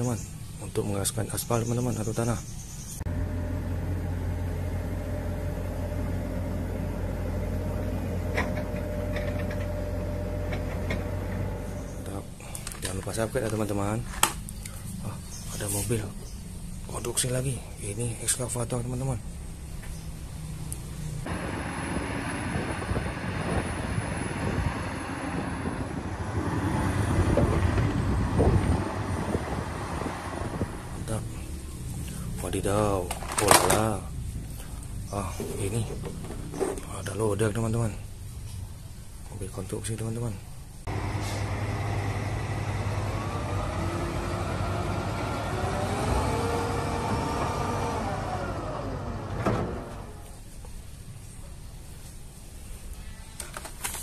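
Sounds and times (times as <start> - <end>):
low mechanical hum: 0.0 - 54.0
excavator engine running: 3.0 - 14.7, 19.4 - 36.9, 40.8 - 50.6.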